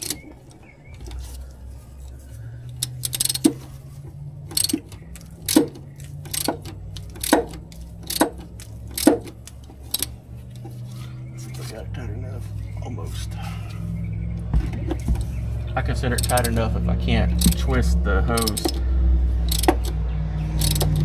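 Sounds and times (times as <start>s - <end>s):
low hum: 0.0s - 21.0s
hand tool clicking: 2.6s - 3.6s, 4.5s - 10.7s, 16.1s - 16.6s, 17.4s - 17.7s, 18.3s - 18.8s, 19.4s - 21.0s.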